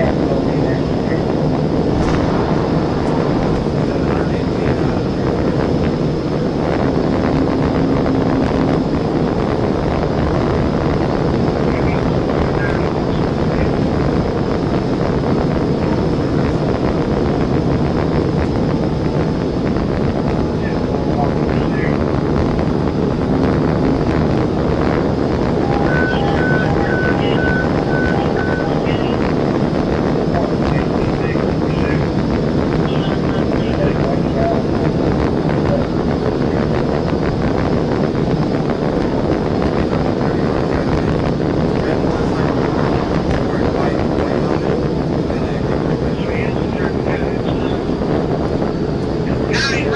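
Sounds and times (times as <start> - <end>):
wind and road noise: 0.0 - 49.9
car engine: 1.2 - 12.2, 40.8 - 45.6.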